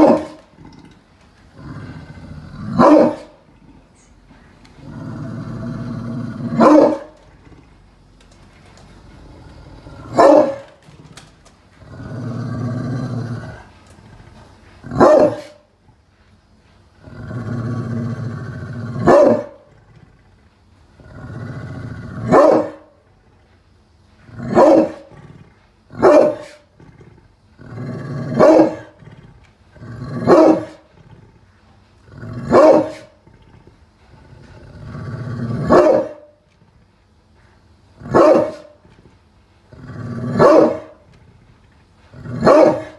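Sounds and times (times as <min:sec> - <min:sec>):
dog growling: 0:00.0 - 0:16.1, 0:16.9 - 0:23.6, 0:24.2 - 0:42.9
dog barking: 0:02.8 - 0:03.3, 0:06.6 - 0:07.1, 0:10.2 - 0:10.7, 0:15.0 - 0:15.6, 0:19.0 - 0:19.6, 0:22.3 - 0:22.8, 0:24.5 - 0:25.0, 0:26.0 - 0:26.6, 0:28.4 - 0:28.8, 0:30.3 - 0:30.8, 0:32.5 - 0:33.1, 0:35.7 - 0:36.3, 0:38.1 - 0:38.8, 0:40.4 - 0:41.0, 0:42.4 - 0:42.9.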